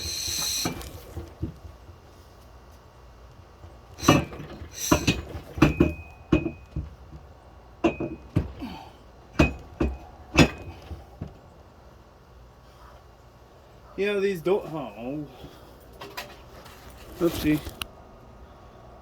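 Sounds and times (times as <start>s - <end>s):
metal clanks and knocks: 3.6s - 8.8s, 9.4s - 11.4s.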